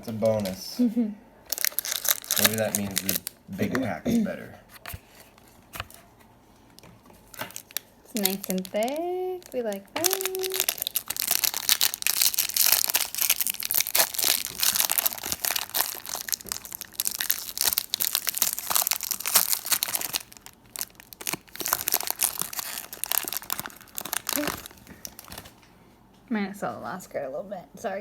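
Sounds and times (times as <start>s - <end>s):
wrapper crinkling and tearing: 1.5s - 3.7s, 6.7s - 25.6s.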